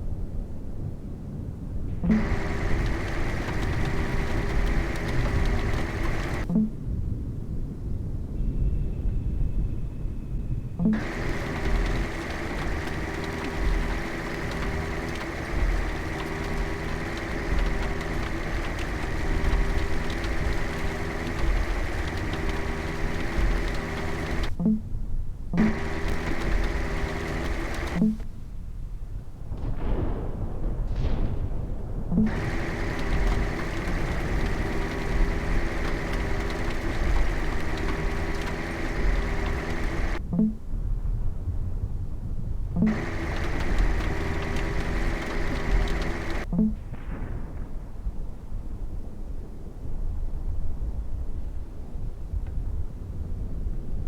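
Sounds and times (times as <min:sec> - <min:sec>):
vehicle engine running: 0:01.9 - 0:06.8, 0:10.8 - 0:24.9, 0:25.5 - 0:28.3, 0:32.1 - 0:40.6, 0:42.8 - 0:47.0.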